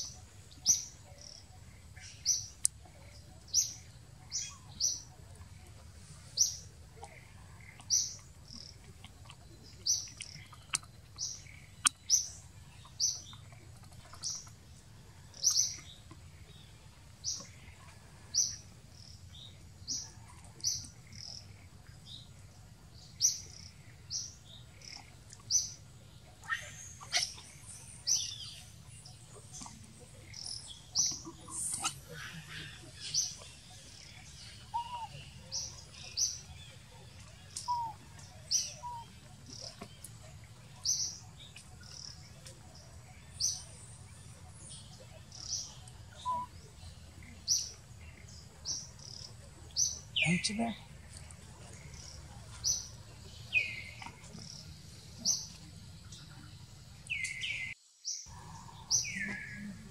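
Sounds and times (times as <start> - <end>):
bird chirping: 0.0 - 14.6, 15.2 - 22.3, 22.9 - 59.9
noisy bird calls: 29.5 - 39.9.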